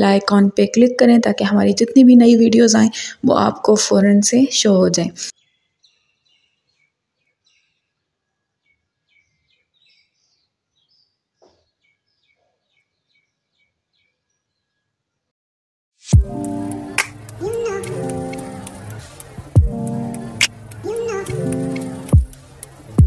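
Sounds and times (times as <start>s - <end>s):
faint bird chirps: 5.3s - 15.0s.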